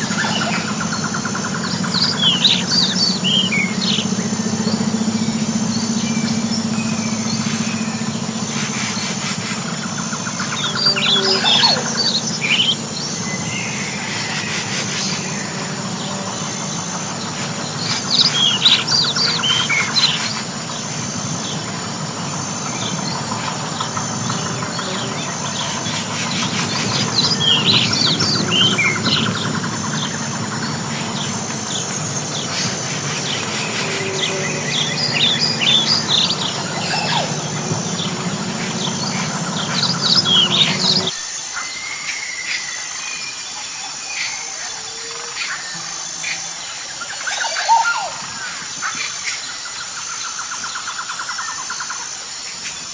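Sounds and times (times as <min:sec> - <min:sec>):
low background rumble: 0:00.0 - 0:41.1
songbird chirping: 0:00.0 - 0:51.8
high insect trill: 0:00.0 - 0:52.9.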